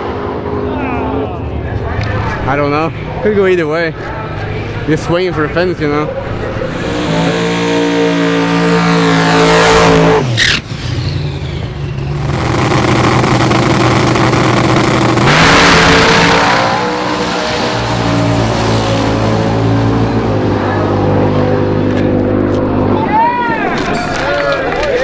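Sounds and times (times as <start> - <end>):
racing car engine passing: 6.2 - 23.0.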